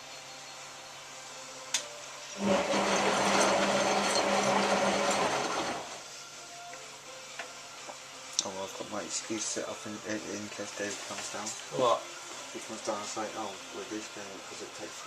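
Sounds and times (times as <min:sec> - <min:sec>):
washing machine drum motor hum: 0:02.4 - 0:06.0.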